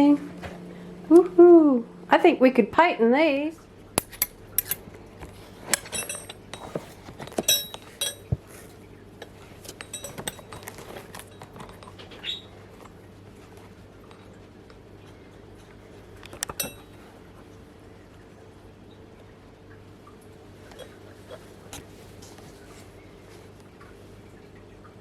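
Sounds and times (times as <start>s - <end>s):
metal tools clinking together: 4.0s - 4.8s, 5.7s - 8.3s, 9.6s - 12.0s.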